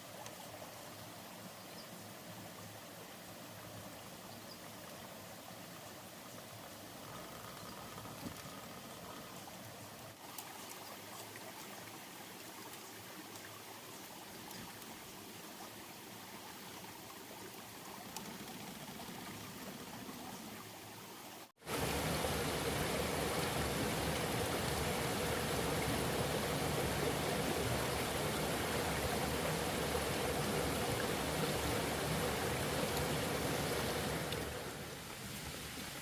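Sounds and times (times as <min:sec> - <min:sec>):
flowing water rushing: 0:00.0 - 0:36.0
faint steady hum: 0:17.8 - 0:36.0.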